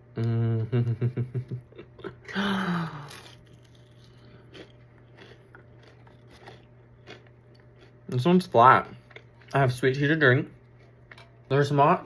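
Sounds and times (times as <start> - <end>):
quiet chewing: 3.0 - 8.2, 8.8 - 9.6.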